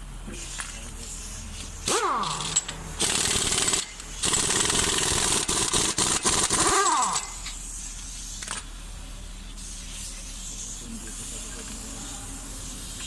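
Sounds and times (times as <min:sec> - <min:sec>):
impact wrench hammering: 0:01.8 - 0:07.6.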